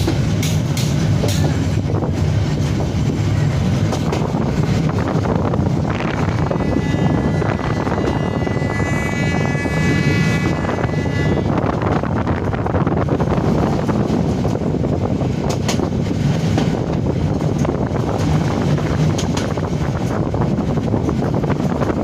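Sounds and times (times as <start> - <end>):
train rumbling on track: 0.0 - 22.0
steady high-pitched tone: 6.0 - 11.6.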